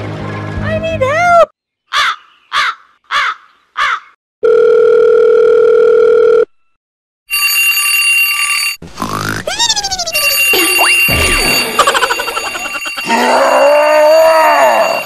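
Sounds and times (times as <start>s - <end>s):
smartphone ringtone: 4.4s - 6.5s, 7.3s - 8.8s, 9.7s - 13.8s
phone calling tone: 4.4s - 6.6s.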